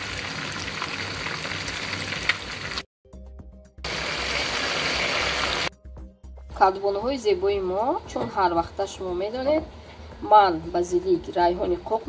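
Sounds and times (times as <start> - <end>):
food frying in oil: 0.0 - 2.9, 3.9 - 5.7.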